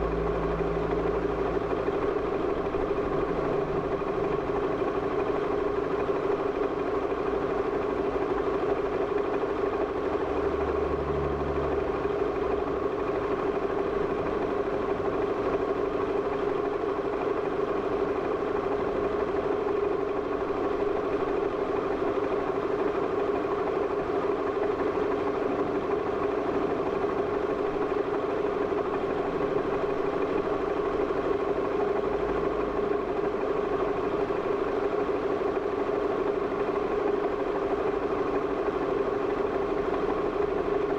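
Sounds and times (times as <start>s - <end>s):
vehicle engine idling: 0.0s - 40.9s.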